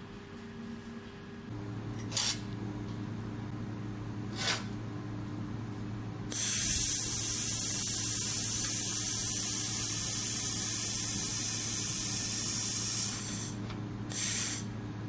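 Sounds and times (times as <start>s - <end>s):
welding machine hum: 1.5s - 15.0s
welding hiss: 6.3s - 14.7s.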